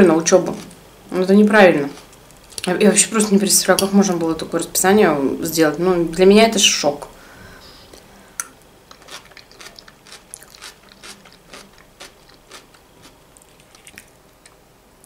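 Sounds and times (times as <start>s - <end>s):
person chewing food: 8.4s - 14.6s.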